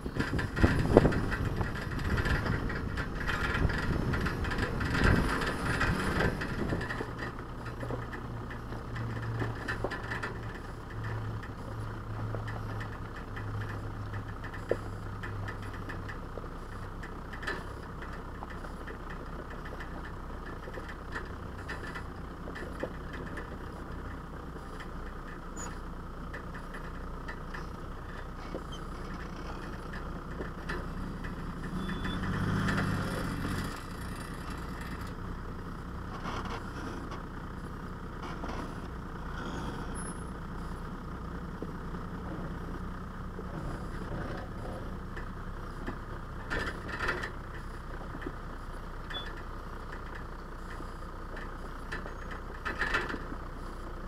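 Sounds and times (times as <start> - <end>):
knocks and rattles: 0.0 - 35.2, 41.3 - 48.4
off-road vehicle engine running: 0.0 - 54.0.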